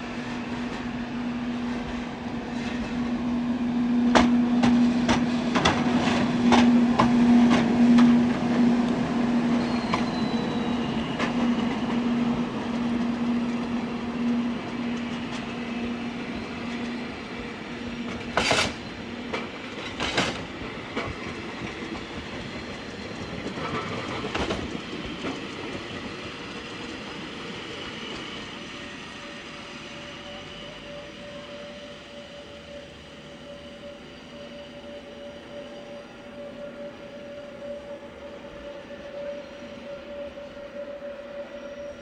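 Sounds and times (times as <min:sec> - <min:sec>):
locomotive hum: 0:00.0 - 0:42.0
train wheels clacking on rails: 0:04.0 - 0:28.7.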